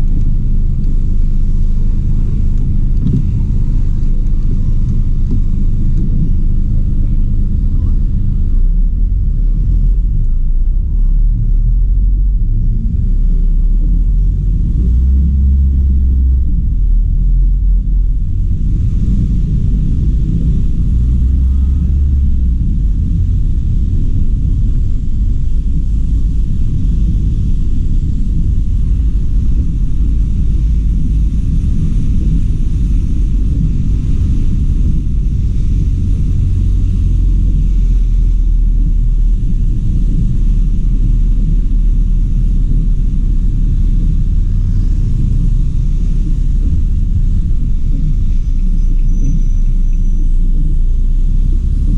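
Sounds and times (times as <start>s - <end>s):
car engine and tyres rumbling: 0.0s - 51.9s.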